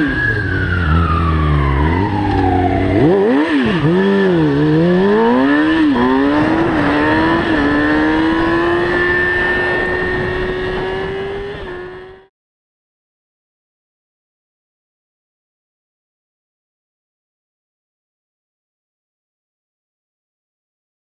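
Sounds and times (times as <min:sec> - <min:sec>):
motorcycle engine revving: 0:00.0 - 0:12.3.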